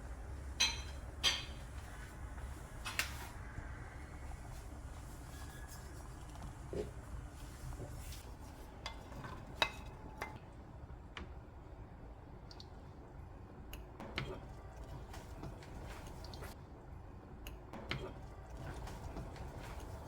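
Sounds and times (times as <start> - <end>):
utensils clinking on cookware: 0.6 - 1.8, 8.8 - 10.4.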